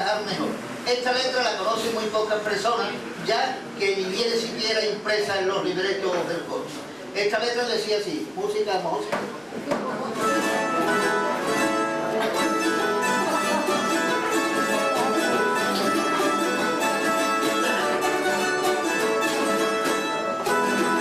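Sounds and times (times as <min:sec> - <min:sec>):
plucked string trio playing: 0:09.8 - 0:21.0.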